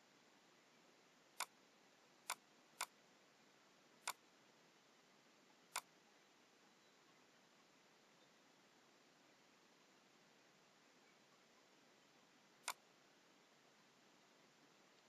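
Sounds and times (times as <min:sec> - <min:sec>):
faint hiss: 0:00.0 - 0:15.0
computer mouse clicks: 0:01.4 - 0:01.6, 0:02.2 - 0:03.0, 0:04.0 - 0:04.2, 0:05.7 - 0:05.9, 0:12.6 - 0:12.8.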